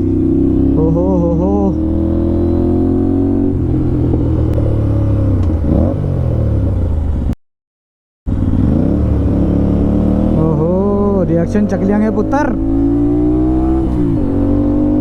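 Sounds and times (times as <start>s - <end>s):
motorcycle engine: 0.0s - 7.4s, 8.3s - 15.0s.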